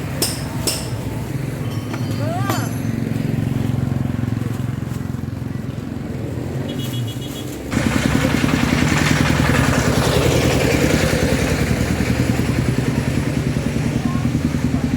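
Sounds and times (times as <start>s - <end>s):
small engine running: 7.7s - 14.9s.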